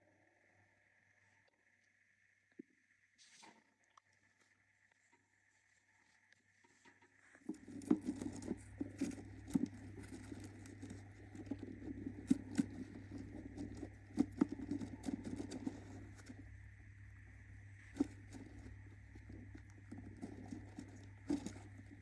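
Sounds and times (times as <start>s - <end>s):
steady low hum: 0.0s - 22.0s
bird scratching and pattering: 6.6s - 22.0s.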